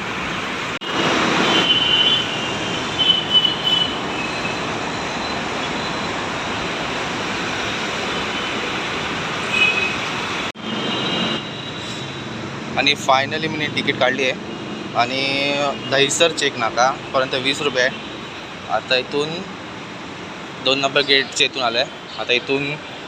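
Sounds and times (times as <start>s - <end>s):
rushing noise of passing transport: 0.0s - 23.0s
high squeals: 1.4s - 6.3s.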